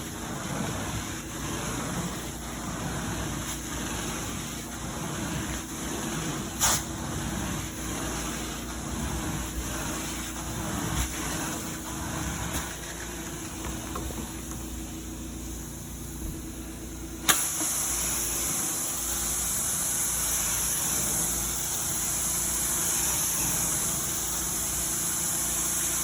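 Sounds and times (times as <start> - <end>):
sharp hiss burst: 6.4 - 7.0, 17.2 - 26.0.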